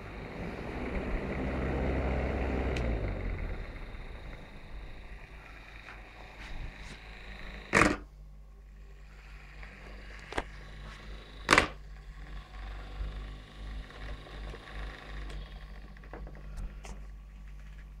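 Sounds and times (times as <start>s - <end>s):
small fan humming: 0.0s - 18.0s.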